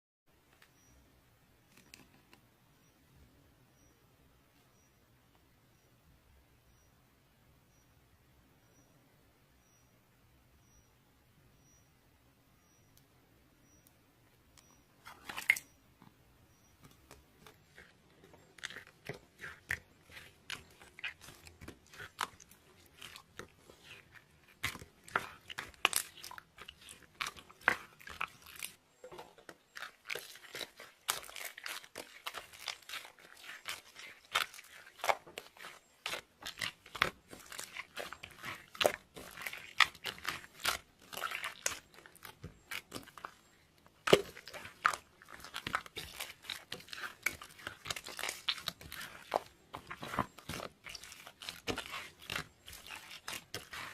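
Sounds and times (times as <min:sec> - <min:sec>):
slime squished by hand: 0:17.0 - 0:53.9.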